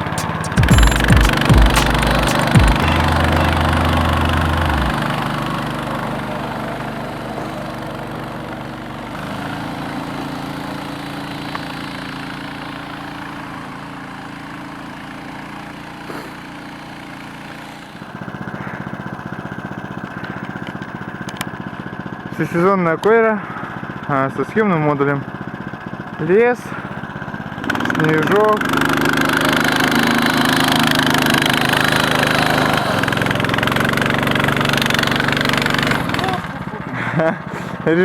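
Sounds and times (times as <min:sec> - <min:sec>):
tow tractor engine pulsing: 0:00.0 - 0:09.5, 0:26.9 - 0:38.0.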